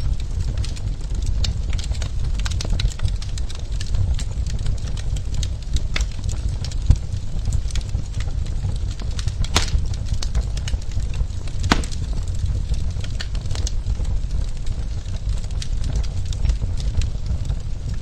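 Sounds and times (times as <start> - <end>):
fireplace wood crackling and popping: 0.0 - 18.0
low fire rumble: 0.0 - 18.0.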